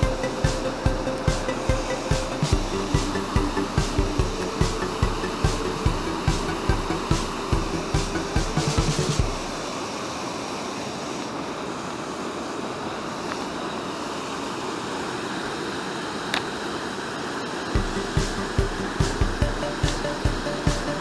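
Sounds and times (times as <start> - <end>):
background music with beat: 0.0 - 9.6, 17.8 - 21.0
water rushing: 0.0 - 21.0.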